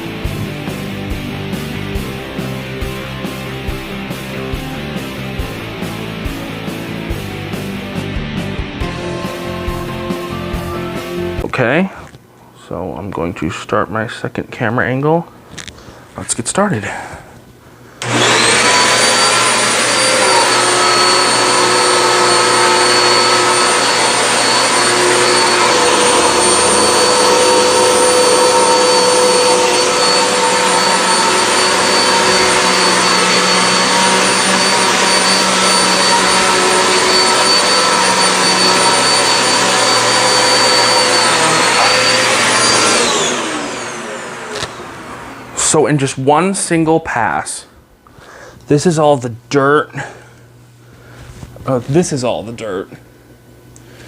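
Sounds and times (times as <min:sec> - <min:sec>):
vacuum cleaner running: 0:00.0 - 0:11.8, 0:18.0 - 0:46.2.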